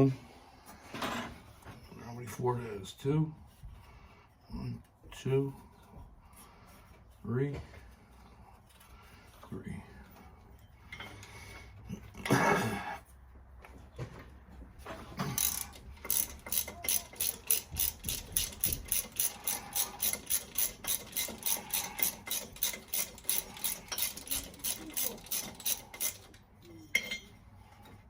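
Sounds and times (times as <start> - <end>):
ratchet wrench clicking: 15.2 - 26.4.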